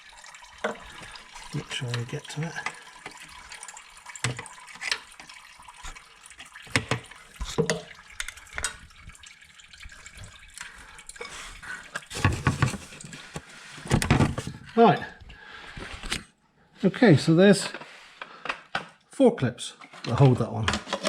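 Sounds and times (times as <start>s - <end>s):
coolant trickling out: 0.0s - 14.6s.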